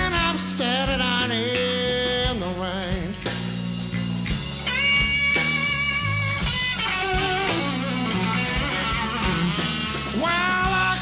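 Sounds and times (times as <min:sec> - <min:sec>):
person singing: 0:00.0 - 0:03.3, 0:08.4 - 0:11.0
live blues band: 0:00.0 - 0:11.0
electric guitar fill: 0:04.3 - 0:11.0.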